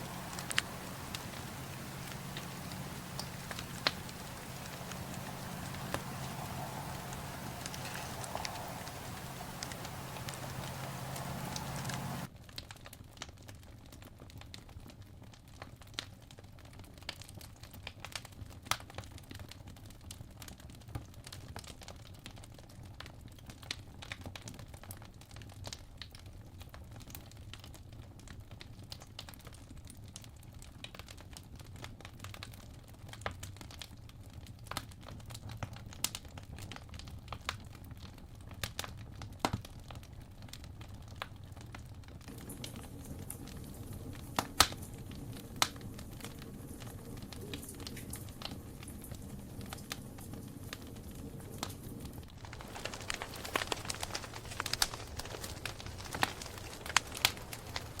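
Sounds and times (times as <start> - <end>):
campfire crackling: 0.0 - 12.3, 42.3 - 58.0.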